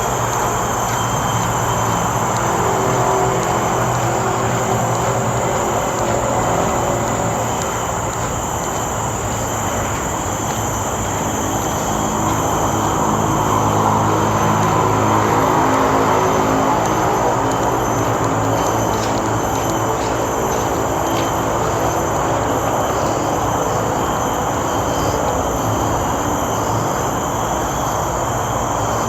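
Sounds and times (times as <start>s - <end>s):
road traffic rushing: 0.0s - 29.0s.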